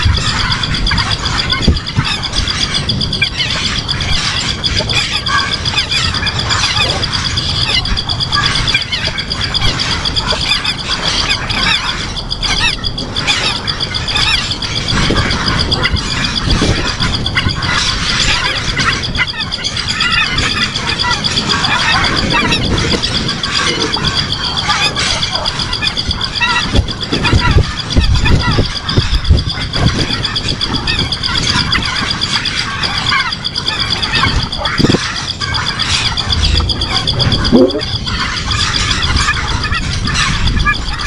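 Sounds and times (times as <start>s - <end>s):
birds chirping and squealing: 0.0s - 41.0s
high pulsing trill: 0.0s - 41.0s
low rumble: 35.6s - 39.0s.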